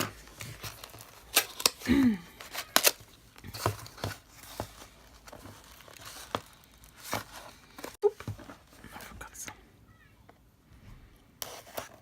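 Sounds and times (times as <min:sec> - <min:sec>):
packaging rustling and crinkling: 0:00.0 - 0:09.1.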